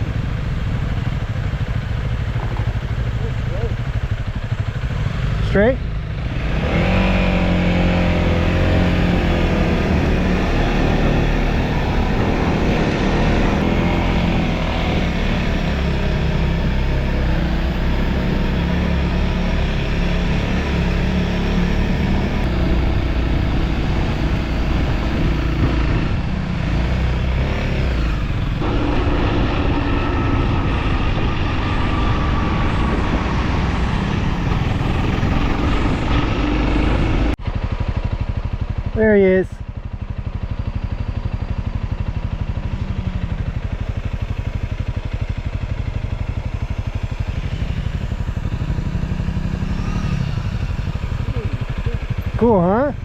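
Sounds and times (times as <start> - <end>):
motorcycle engine running: 0.0 - 53.0
road noise: 0.0 - 53.0.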